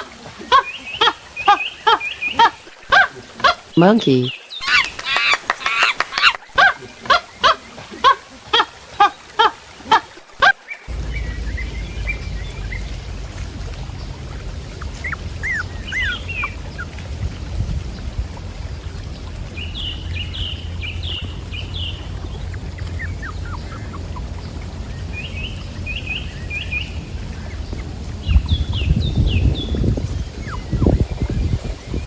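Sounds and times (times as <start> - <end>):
loud pitched animal calls: 10.9 - 17.1
low outdoor rumble: 10.9 - 32.0.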